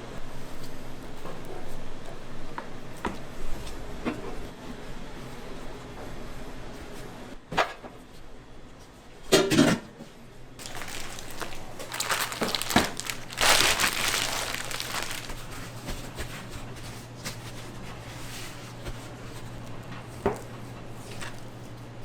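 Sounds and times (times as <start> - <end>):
crinkling and rustling: 10.6 - 16.1, 20.3 - 21.6.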